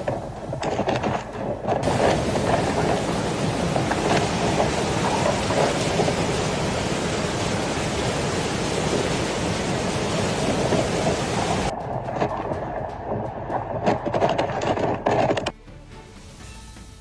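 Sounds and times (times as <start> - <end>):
heavy rain: 1.8 - 13.1.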